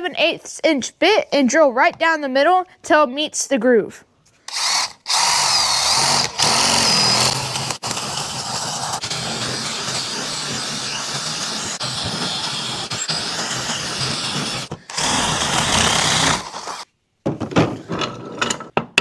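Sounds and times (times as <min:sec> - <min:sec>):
power drill boring into wood: 0:04.5 - 0:16.8.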